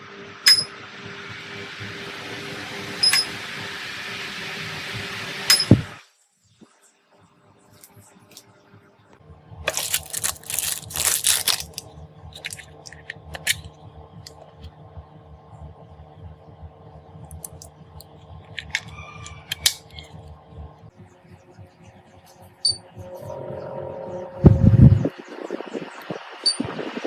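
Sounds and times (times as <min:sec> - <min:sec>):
electric fan humming: 0:00.0 - 0:06.0, 0:09.2 - 0:27.0
clattering and rustling handling: 0:09.7 - 0:11.8.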